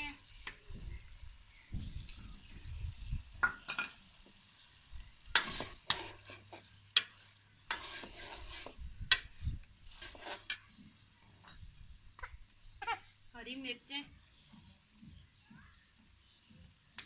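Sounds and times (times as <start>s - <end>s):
light sizzle: 0.0s - 17.0s
spoon scraping a pan: 5.3s - 11.7s.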